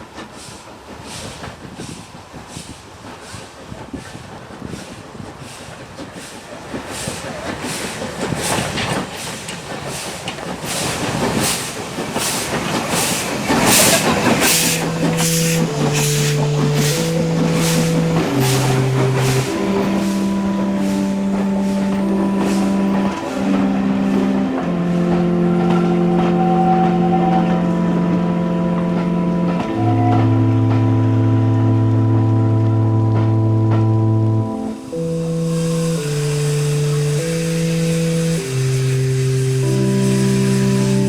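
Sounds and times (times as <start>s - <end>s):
steam locomotive exhaust beats: 0.0s - 41.0s
slow music with long held notes: 13.6s - 41.0s.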